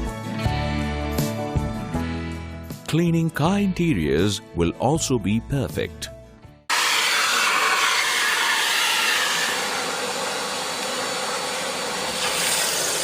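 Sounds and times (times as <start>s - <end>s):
vacuum cleaner suction: 6.7s - 13.0s.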